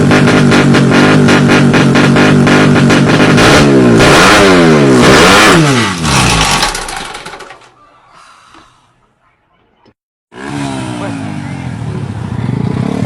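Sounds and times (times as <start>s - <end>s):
engine revving hard: 0.0s - 7.4s, 10.3s - 13.0s.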